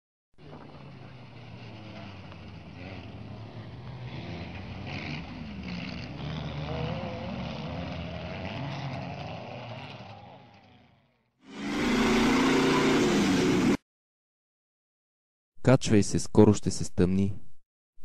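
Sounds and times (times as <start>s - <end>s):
car engine running: 11.5s - 13.8s.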